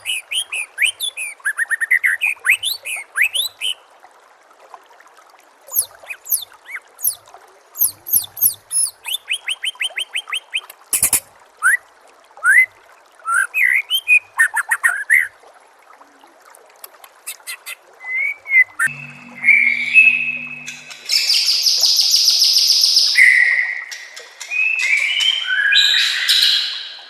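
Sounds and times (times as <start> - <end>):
bird singing varied song: 0.0 - 3.8, 5.7 - 7.2, 7.8 - 11.2, 13.3 - 15.2, 17.3 - 27.0.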